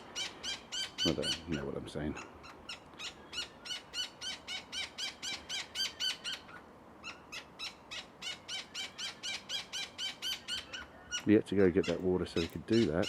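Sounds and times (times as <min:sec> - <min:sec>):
parrot chick begging calls: 0:00.1 - 0:01.6, 0:02.4 - 0:13.0.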